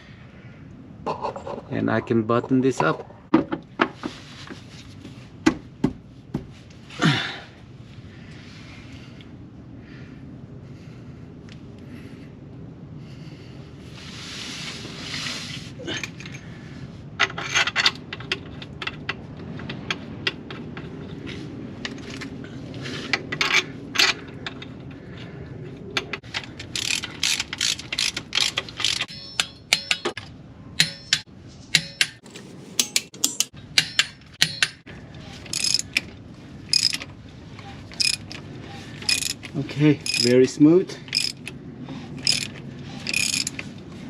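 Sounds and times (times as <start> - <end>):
hand ratchet clicking: 26.3 - 30.2, 35.5 - 36.1, 36.7 - 37.1, 38.0 - 38.4, 39.0 - 40.4, 41.1 - 41.5, 42.2 - 43.7.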